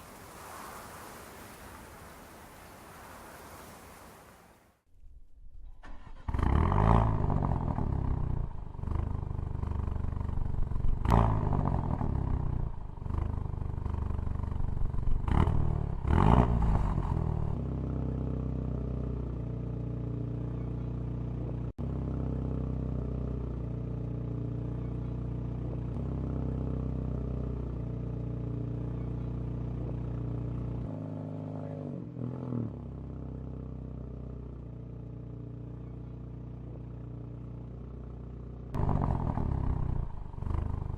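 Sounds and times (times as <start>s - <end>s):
car engine revving: 38.8s - 40.9s.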